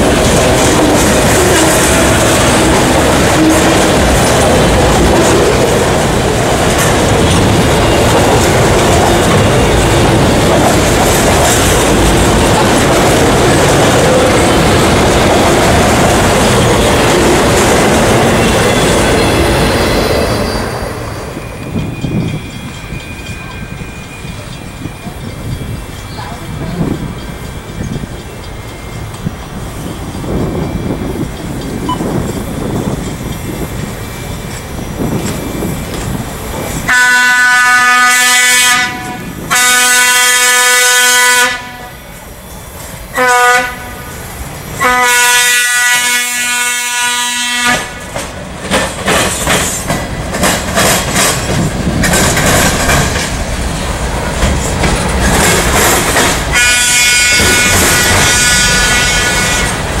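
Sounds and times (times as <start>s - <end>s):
wheels clacking over rail joints: 0.0s - 37.1s, 47.6s - 60.0s
train locomotive rumble: 0.0s - 60.0s
train air horn blasts: 0.6s - 4.0s, 36.9s - 42.1s, 43.1s - 44.2s, 44.8s - 48.0s, 56.5s - 59.9s
high wheel squeal: 16.4s - 35.9s.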